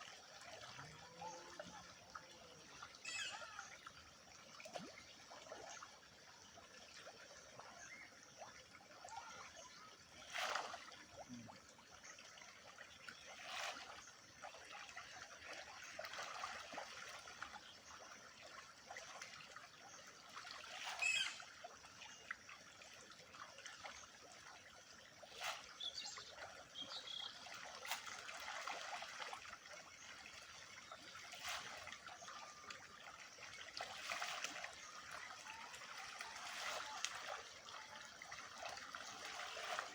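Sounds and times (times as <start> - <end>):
water trickling at a pond: 0.0 - 39.9
sharp water splashes: 31.0 - 39.9.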